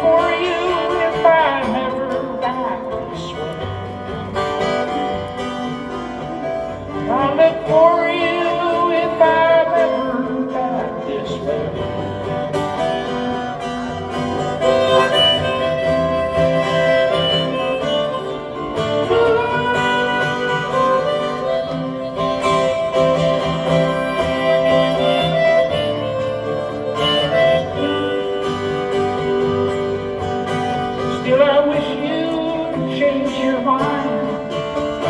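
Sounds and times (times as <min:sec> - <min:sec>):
acoustic guitar strumming: 0:00.0 - 0:35.0
harmonica solo: 0:00.0 - 0:35.0.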